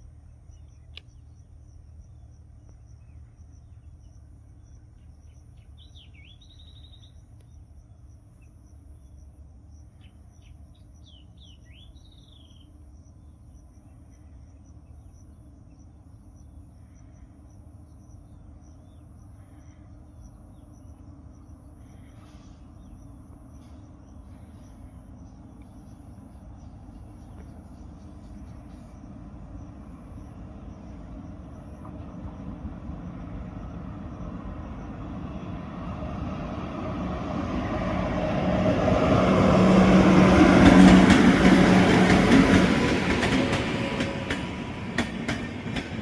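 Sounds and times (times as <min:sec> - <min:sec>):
insects trilling: 0:00.0 - 0:36.3
bird chirps: 0:00.2 - 0:09.2, 0:09.9 - 0:16.6.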